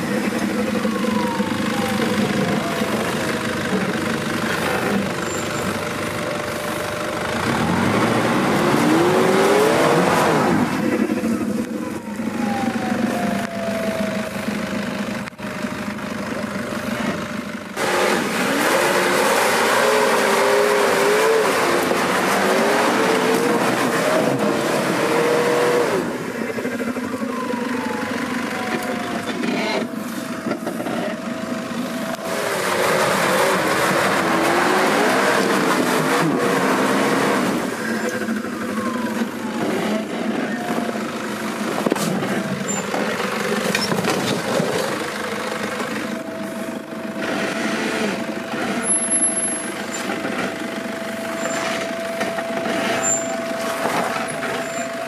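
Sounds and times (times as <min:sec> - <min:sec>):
engine revving hard: 0:07.4 - 0:11.2, 0:17.8 - 0:26.4, 0:32.2 - 0:38.3, 0:47.2 - 0:49.2.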